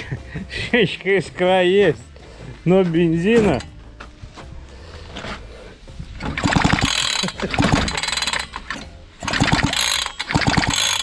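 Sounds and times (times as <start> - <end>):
pull-starter ratcheting clicks: 6.2 - 11.0.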